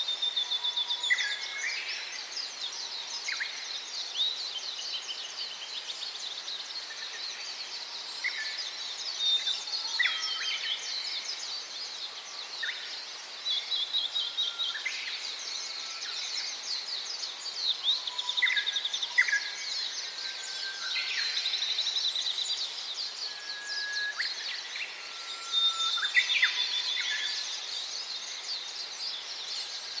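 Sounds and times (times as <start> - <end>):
small birds chirping: 0.0 - 30.0
whistled bird notes: 17.7 - 27.6.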